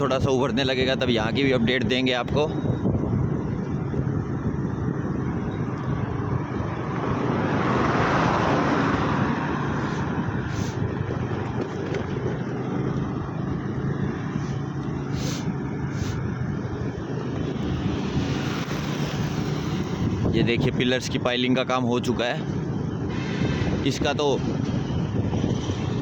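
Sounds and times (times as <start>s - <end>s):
traffic engine hum: 0.0s - 26.0s
vehicle passing by: 6.6s - 10.9s, 12.7s - 20.6s
short hisses: 14.4s - 16.2s.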